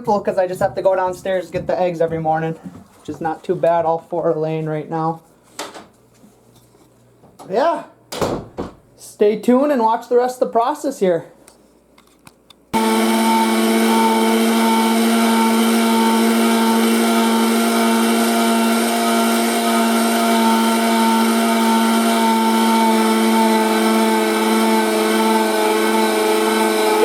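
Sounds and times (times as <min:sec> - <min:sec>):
electric grinder running: 0:12.8 - 0:27.0.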